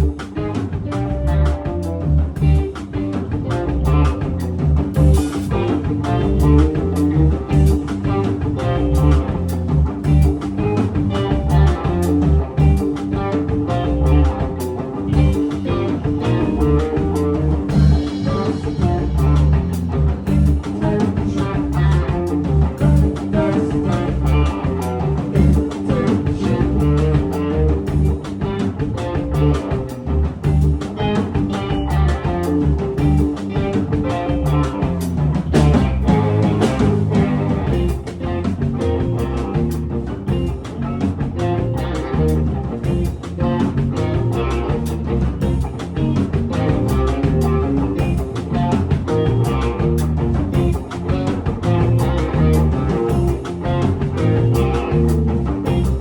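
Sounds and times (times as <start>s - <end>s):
drum kit: 0.0s - 56.0s
electric guitar playing heavy riffs: 0.0s - 56.0s.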